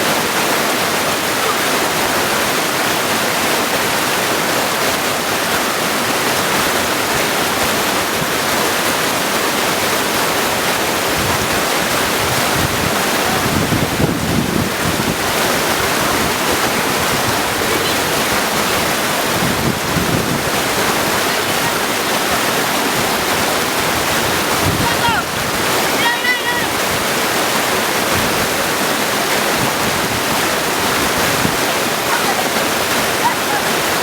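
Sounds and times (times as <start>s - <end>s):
creek rushing over stones: 0.0s - 34.0s.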